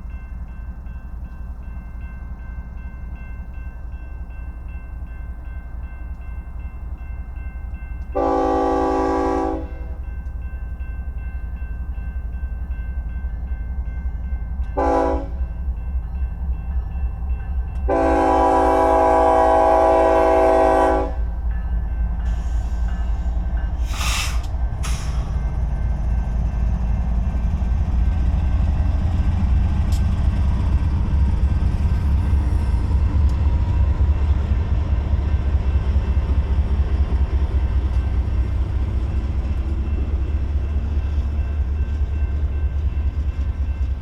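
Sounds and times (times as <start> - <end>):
crossing signal bell ringing: 0.0 - 23.8
train rumbling: 0.0 - 44.0
locomotive air horn: 8.2 - 10.0, 14.8 - 15.4, 17.9 - 21.3.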